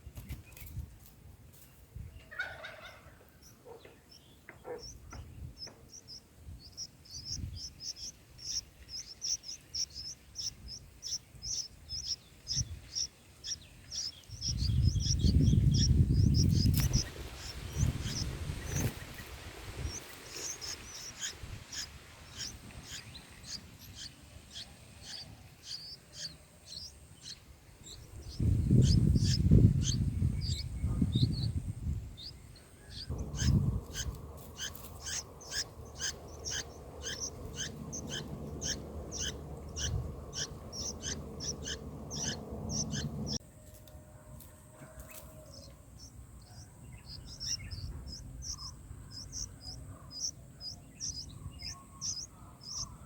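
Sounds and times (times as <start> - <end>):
bulbuls chirping: 2.2 - 43.4, 44.9 - 53.0
loud low rumble: 33.1 - 43.4.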